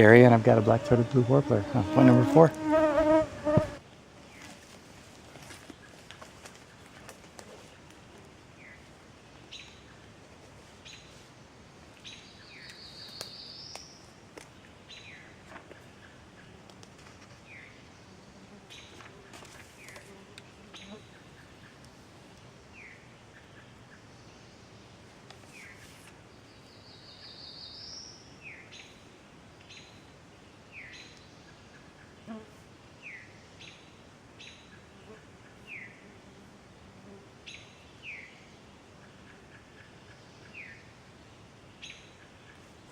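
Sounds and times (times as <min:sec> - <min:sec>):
buzzy rising warbler song: 0:00.0 - 0:03.8.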